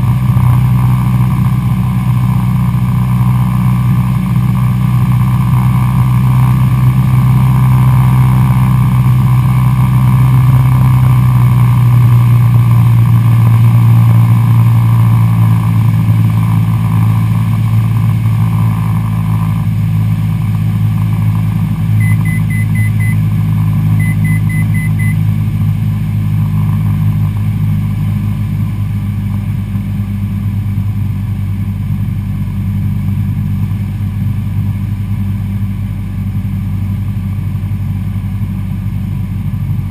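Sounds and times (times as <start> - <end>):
airplane engine and propeller droning: 0.0 - 39.9
quick electronic beeps: 22.0 - 23.2, 24.0 - 25.2.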